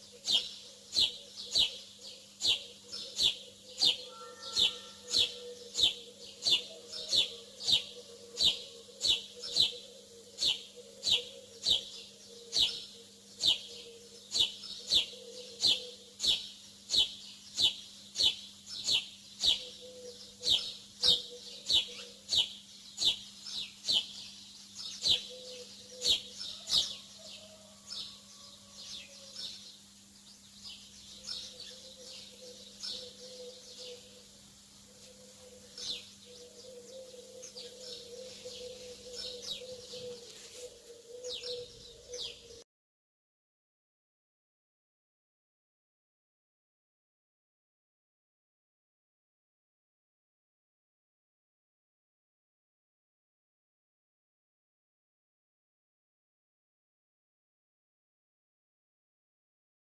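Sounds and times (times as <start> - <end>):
bird chirping: 0.0 - 34.2, 35.0 - 42.6.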